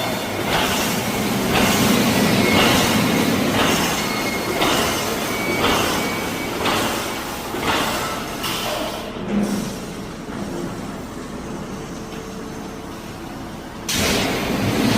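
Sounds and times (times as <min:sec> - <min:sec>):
welding machine running: 0:00.0 - 0:08.5.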